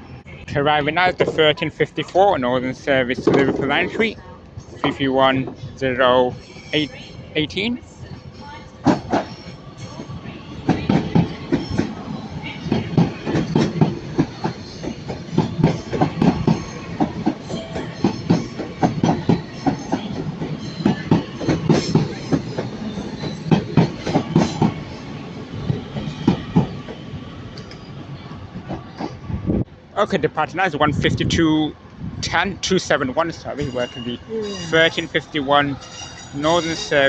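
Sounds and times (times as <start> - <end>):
train rumble: 0.0 - 37.0
train wheels clattering over joints: 3.0 - 4.1, 8.8 - 29.2.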